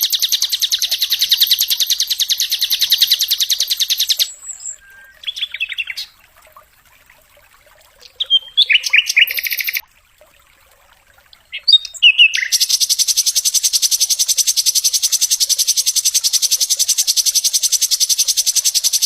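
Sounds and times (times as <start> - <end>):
bird rattling trill: 0.0 - 4.3, 12.5 - 19.0
bird chirping: 0.0 - 6.2, 8.0 - 9.8, 11.5 - 19.0.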